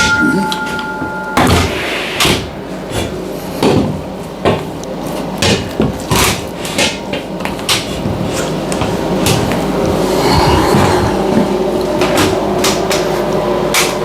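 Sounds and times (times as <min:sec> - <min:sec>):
hammer blows: 0:00.0 - 0:03.8
low background hum: 0:00.0 - 0:14.0.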